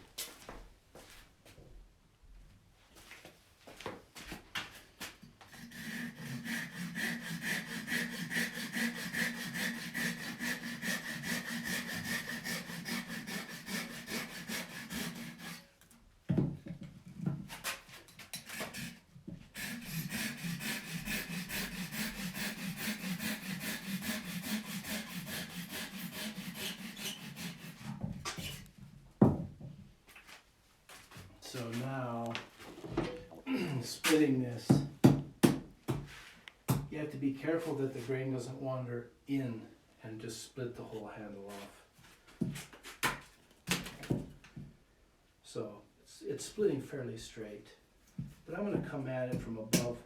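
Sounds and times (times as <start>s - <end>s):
hand saw cutting wood: 5.4s - 15.9s, 17.5s - 28.7s, 49.4s - 50.0s.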